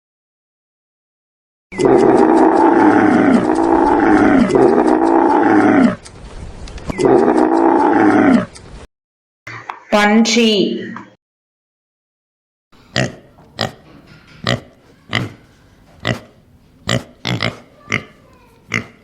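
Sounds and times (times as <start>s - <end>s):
camel calling: 1.8s - 6.0s.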